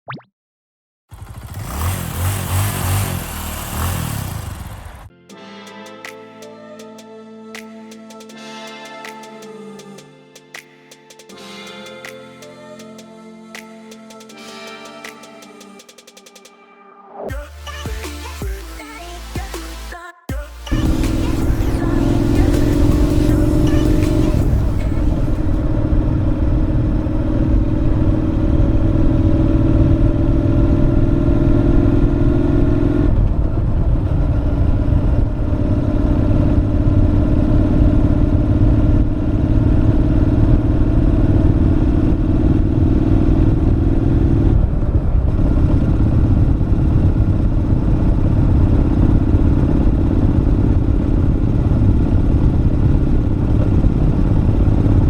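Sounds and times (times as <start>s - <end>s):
road and wind rumble: 1.1s - 5.1s, 20.8s - 55.0s
motorcycle exhaust note: 20.6s - 55.0s.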